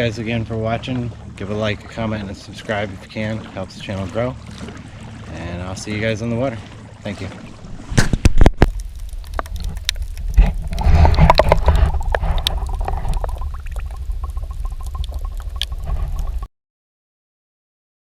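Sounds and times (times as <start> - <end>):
water sloshing against kayak hull: 0.0 - 16.5
wind rumble on microphone: 7.6 - 16.5.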